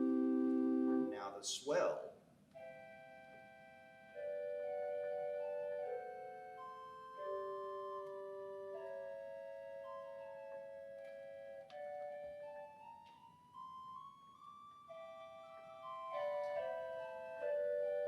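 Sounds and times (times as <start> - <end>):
pipe organ sustained chords: 0.0 - 1.4, 2.6 - 18.0.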